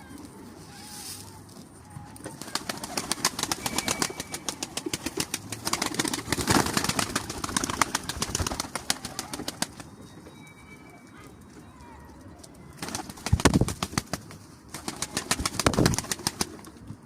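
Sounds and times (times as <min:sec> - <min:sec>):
pigeon wings flapping: 0:02.3 - 0:09.9, 0:12.7 - 0:16.9.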